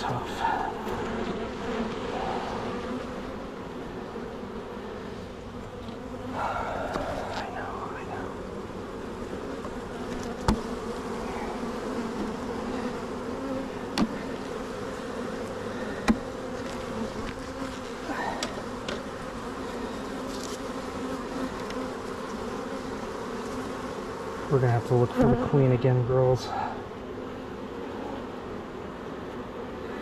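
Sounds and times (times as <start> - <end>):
bees buzzing: 0.0 - 30.0.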